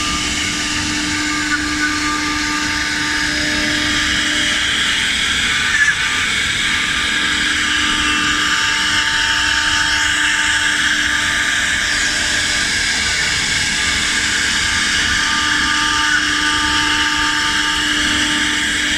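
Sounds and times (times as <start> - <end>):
machining noise: 0.0 - 18.9
wood router spindle whining: 0.0 - 18.9.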